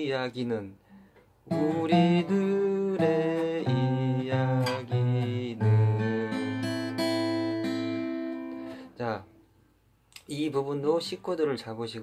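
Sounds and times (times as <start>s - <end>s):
acoustic guitar melody: 0.9s - 9.5s.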